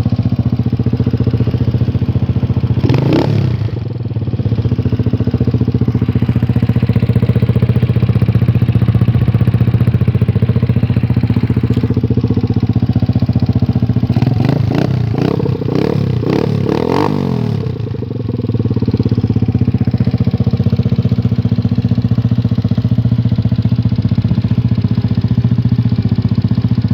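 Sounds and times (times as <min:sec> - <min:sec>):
motorcycle engine idling: 0:00.0 - 0:26.9
motorcycle throttle blips: 0:04.9 - 0:18.0.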